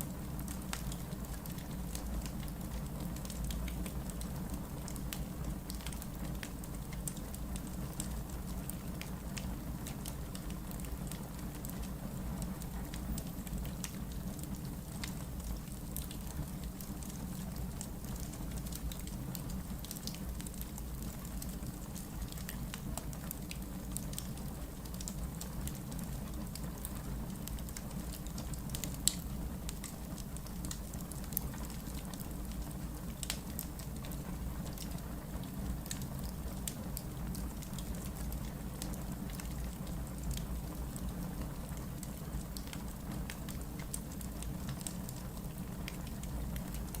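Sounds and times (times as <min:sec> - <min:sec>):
wood fire crackling and popping: 0:00.4 - 0:47.0.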